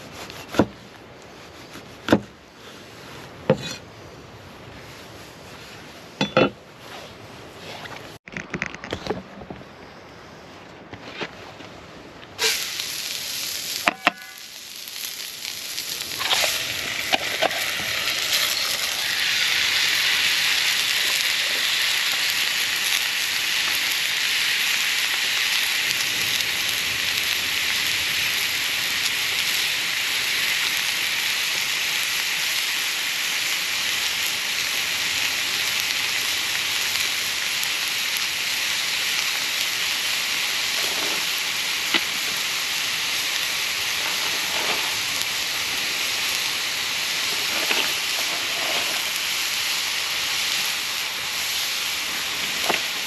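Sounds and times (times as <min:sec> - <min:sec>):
food sizzling in a pan: 0:12.4 - 0:53.0.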